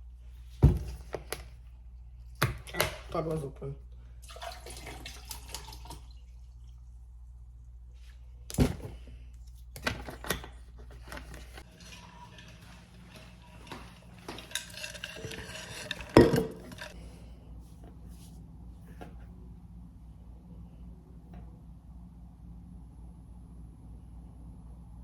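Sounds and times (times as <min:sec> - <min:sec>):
clinking: 0:11.6 - 0:17.0.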